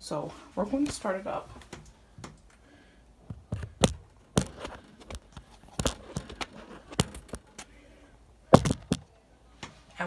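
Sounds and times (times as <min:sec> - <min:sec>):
handling knocks and clicks: 0:03.2 - 0:07.8, 0:08.5 - 0:09.8.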